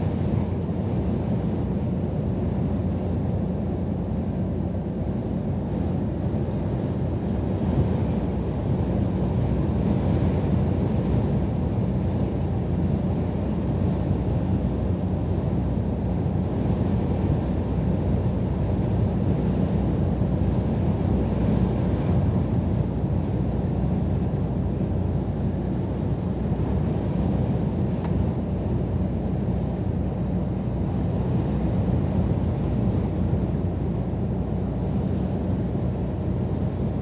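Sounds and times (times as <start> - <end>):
road and tyre noise: 10.9 - 37.0.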